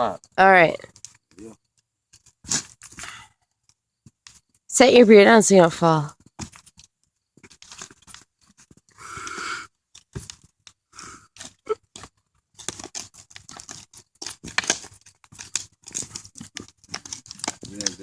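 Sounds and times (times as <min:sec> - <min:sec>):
shovel digging rocky soil: 0:11.4 - 0:18.0.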